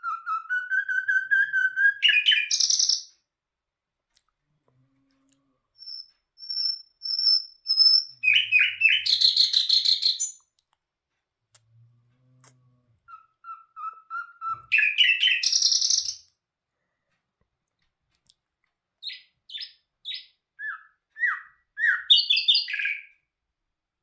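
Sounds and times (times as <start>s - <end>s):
songbird singing whistled notes: 0.0s - 3.1s, 5.8s - 10.4s, 13.1s - 16.3s, 19.0s - 23.2s.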